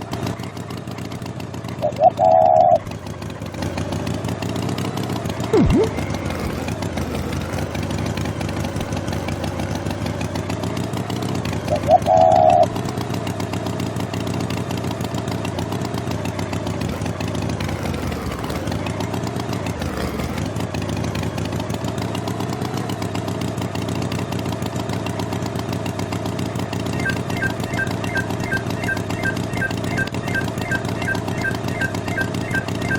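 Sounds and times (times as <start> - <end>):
engine running: 0.0 - 32.9
brief loud tone: 5.5 - 6.6, 26.9 - 32.9.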